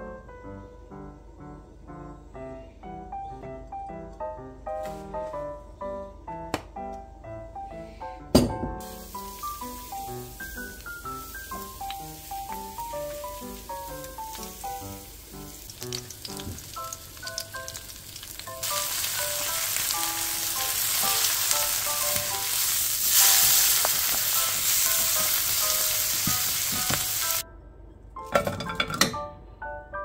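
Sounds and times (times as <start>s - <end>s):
light background music: 0.0s - 30.0s
kimchi sizzling in a pan: 8.8s - 27.4s.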